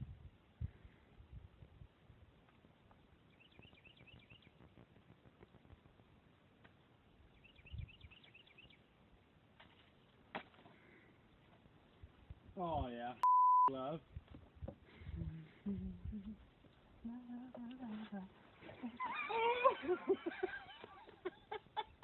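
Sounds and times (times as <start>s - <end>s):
small bird chirping: 3.2s - 4.8s, 7.2s - 8.9s.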